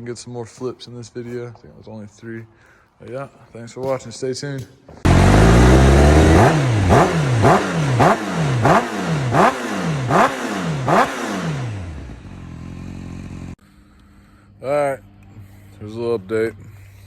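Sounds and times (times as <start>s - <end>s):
motorcycle engine revving: 5.0s - 13.6s.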